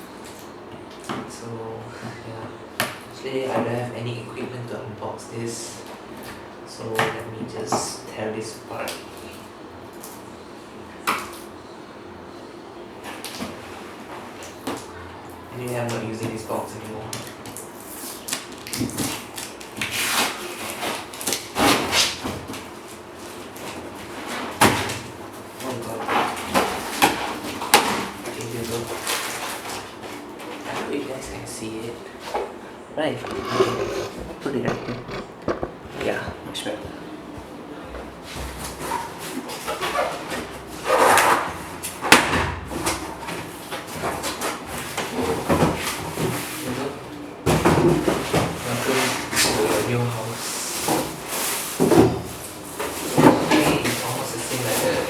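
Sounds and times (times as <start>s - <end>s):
cardboard scraping and rubbing: 33.2s - 36.4s.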